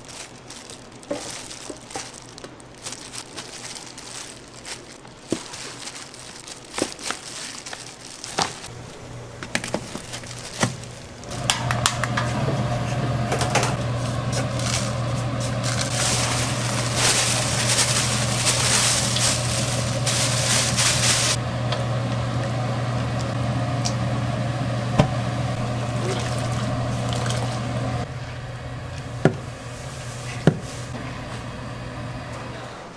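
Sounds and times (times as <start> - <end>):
machine motor humming: 8.7 - 32.9.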